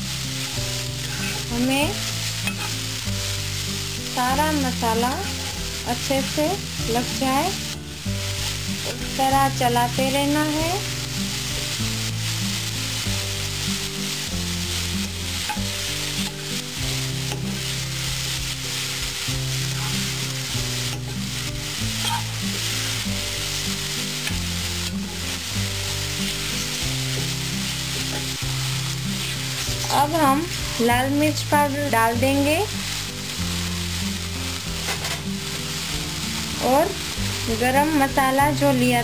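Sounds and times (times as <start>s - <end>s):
background music: 0.0s - 39.0s
cabbage sizzling in a frying pan: 0.0s - 39.0s
spoon scraping and knocking a pan: 1.0s - 1.5s, 2.4s - 2.9s, 15.0s - 16.6s, 17.2s - 17.7s, 19.0s - 22.6s, 28.0s - 28.4s, 34.8s - 35.4s.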